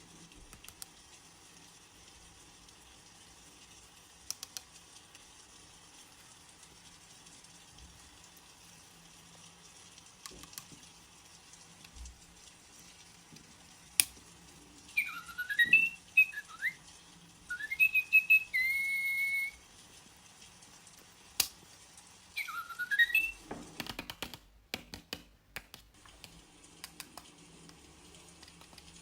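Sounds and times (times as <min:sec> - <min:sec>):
toy bird chirping electronically: 0:14.9 - 0:16.9, 0:17.5 - 0:19.6, 0:22.3 - 0:23.4.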